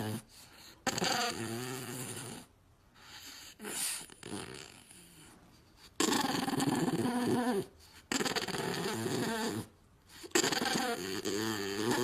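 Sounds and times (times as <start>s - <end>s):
dog vocalizing: 0.0s - 12.0s.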